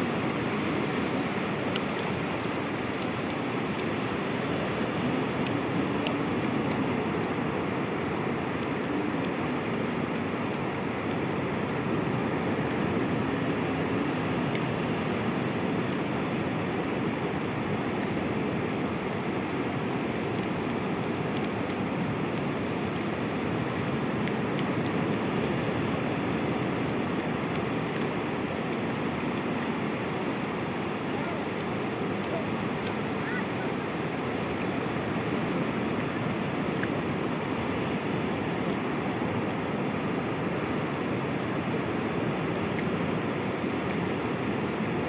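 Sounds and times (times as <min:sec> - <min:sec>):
sea surf roaring: 0:20.6 - 0:45.0.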